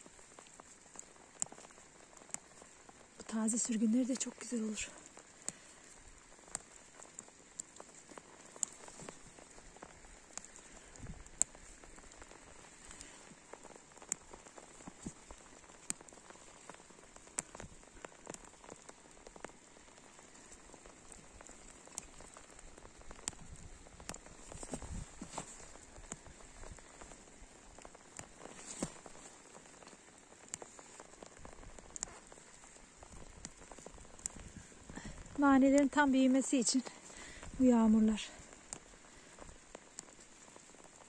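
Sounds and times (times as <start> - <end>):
light rain hiss: 0.0 - 41.0
raindrops ticking: 0.0 - 41.0.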